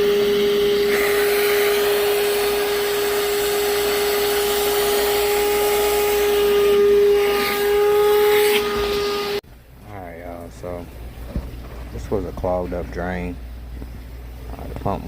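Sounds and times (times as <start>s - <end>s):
electric motor running: 0.0s - 9.4s
constant high hum: 9.3s - 15.0s.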